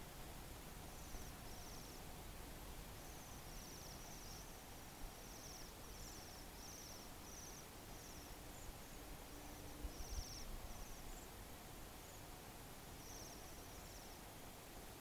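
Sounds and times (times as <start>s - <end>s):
steady hiss: 0.0s - 15.0s
small birds trilling: 0.9s - 2.0s, 3.0s - 12.3s, 13.0s - 14.3s.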